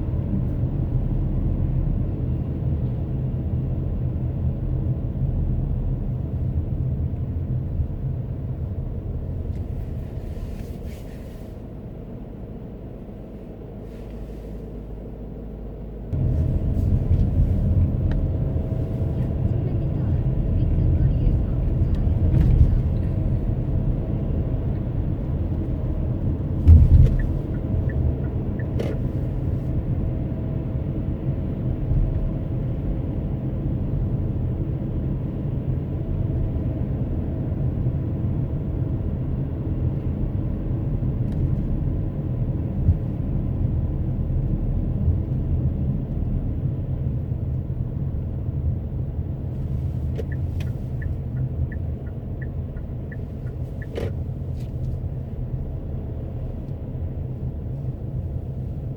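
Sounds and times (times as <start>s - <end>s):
car driving rumble from cabin: 0.0s - 58.9s
loud thump: 26.6s - 27.2s.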